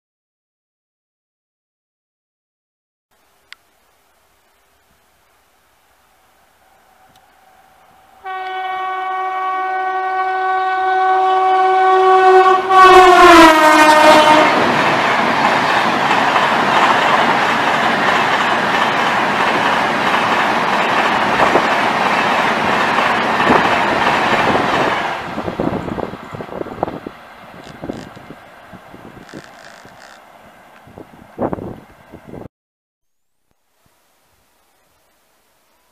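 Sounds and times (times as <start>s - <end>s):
train horn blast: 6.7s - 14.7s
train coaches rushing past: 12.6s - 32.4s.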